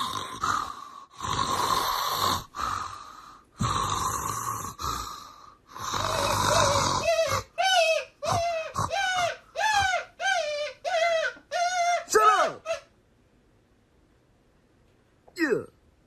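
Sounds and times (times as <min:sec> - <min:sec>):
loud snoring: 0:00.0 - 0:03.0, 0:03.6 - 0:07.4.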